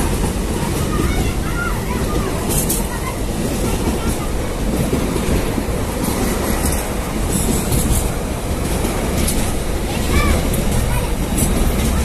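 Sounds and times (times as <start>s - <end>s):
locomotive engine and wheels rumbling: 0.0s - 12.0s.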